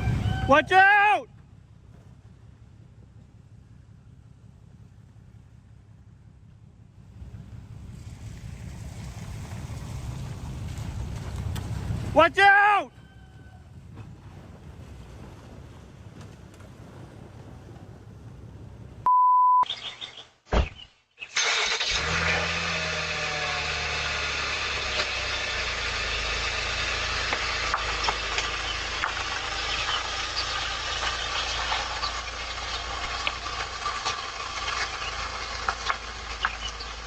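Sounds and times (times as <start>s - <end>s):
vehicle engine humming: 1.3s - 12.2s, 21.5s - 37.0s
censor bleep: 19.1s - 19.7s.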